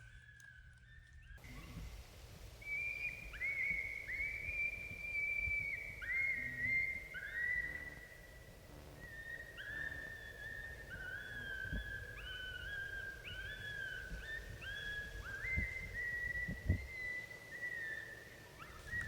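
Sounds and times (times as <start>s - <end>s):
coyotes howling: 9.0s - 19.0s.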